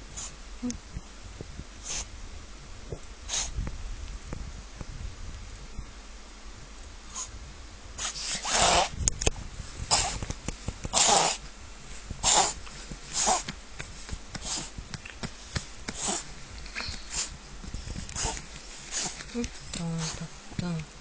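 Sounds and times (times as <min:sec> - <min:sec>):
dog reverse sneezing: 0:03.3 - 0:03.6, 0:07.1 - 0:07.3, 0:08.0 - 0:08.9, 0:09.9 - 0:10.2, 0:10.9 - 0:11.4, 0:12.2 - 0:13.5, 0:15.9 - 0:16.3.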